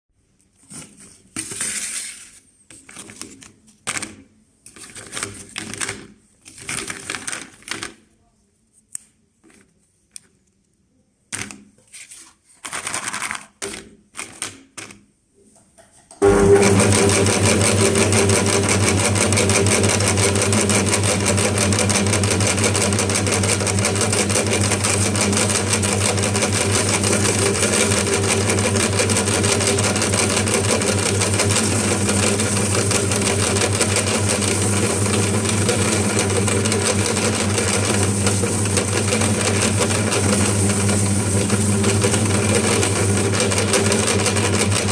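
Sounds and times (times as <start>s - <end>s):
electric meat grinder humming: 16.2s - 44.9s.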